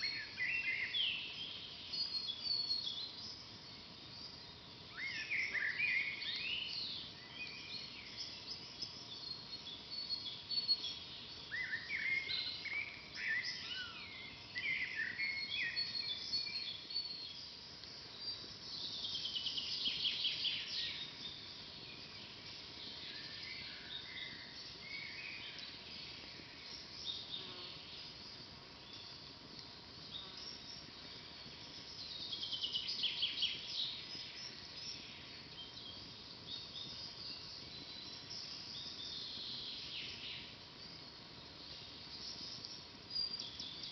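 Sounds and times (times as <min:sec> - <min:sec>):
faint background hiss: 0:00.0 - 0:43.9
songbirds singing and chirping: 0:00.0 - 0:43.9.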